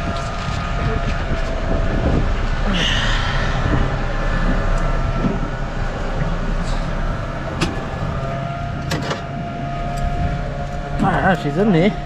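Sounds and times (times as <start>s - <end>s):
outboard motor running: 4.0s - 12.0s.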